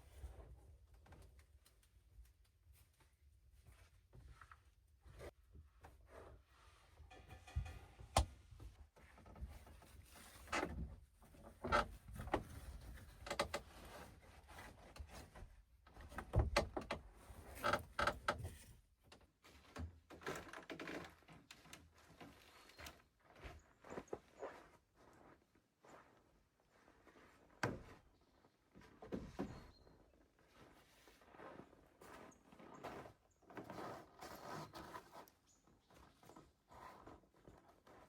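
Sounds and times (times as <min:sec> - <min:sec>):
objects knocking and clattering: 0:07.1 - 0:08.4.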